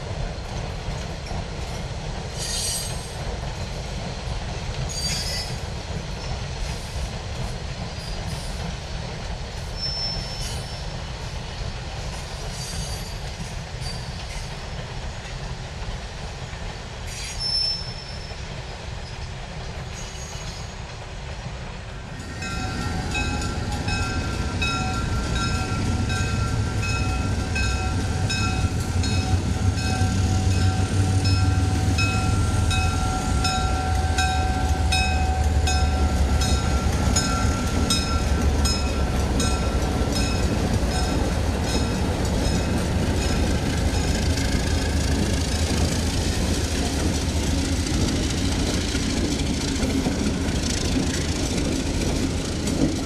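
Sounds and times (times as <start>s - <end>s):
freight train engine rumble: 0.0s - 53.0s.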